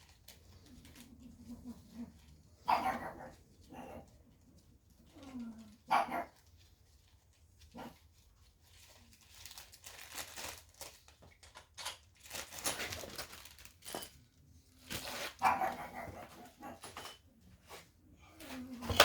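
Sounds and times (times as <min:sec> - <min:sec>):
dog barking: 0:02.6 - 0:04.0, 0:05.9 - 0:06.4, 0:15.4 - 0:16.8.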